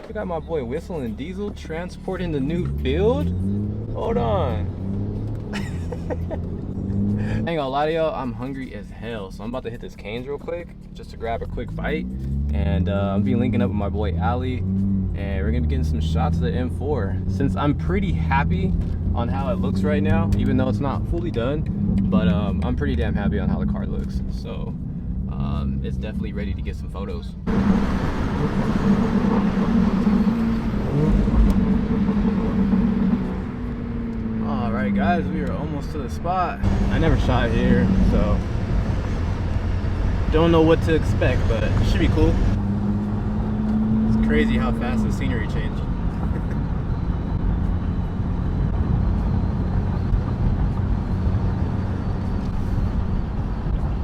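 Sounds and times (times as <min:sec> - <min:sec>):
car engine hum: 0:00.0 - 0:54.0
road and wind noise: 0:00.0 - 0:54.0
tyre and road rumble: 0:27.4 - 0:54.0.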